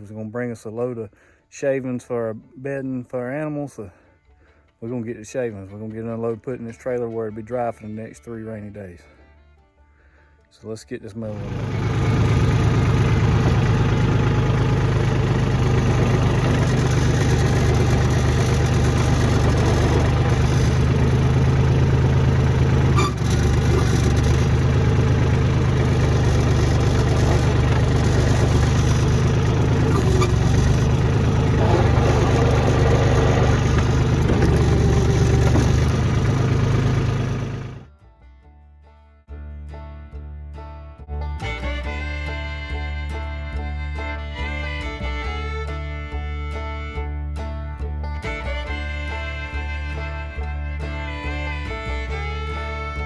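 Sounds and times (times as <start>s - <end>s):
tractor diesel engine running: 11.2s - 37.9s, 47.8s - 53.0s.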